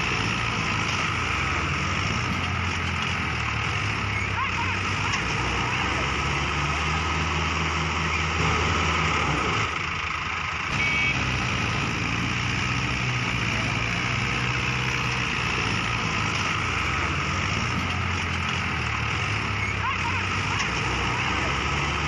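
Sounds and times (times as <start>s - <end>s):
heavy diesel engine running: 0.0s - 22.0s.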